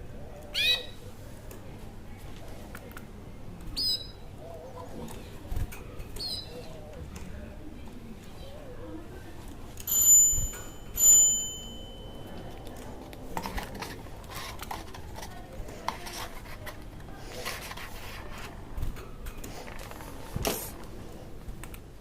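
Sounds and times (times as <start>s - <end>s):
bright ringing dings: 9.9s - 12.6s.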